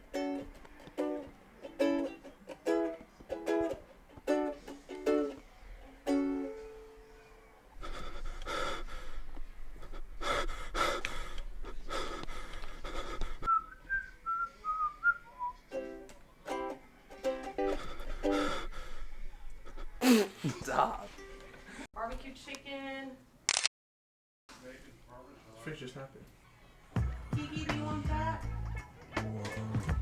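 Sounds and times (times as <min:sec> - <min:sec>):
upbeat ukulele music: 0:00.0 - 0:05.4, 0:06.0 - 0:07.0, 0:15.6 - 0:17.8
whistled tune: 0:13.5 - 0:16.7.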